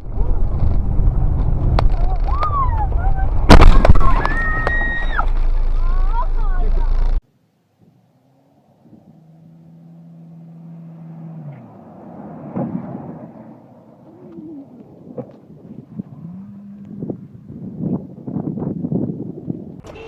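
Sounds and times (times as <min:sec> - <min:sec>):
road noise: 0:00.0 - 0:17.1
car engine hum: 0:08.0 - 0:15.4.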